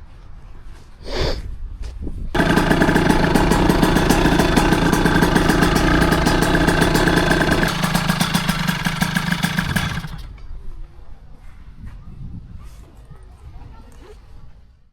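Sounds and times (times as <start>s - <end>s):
two-stroke engine running steadily: 2.4s - 10.4s.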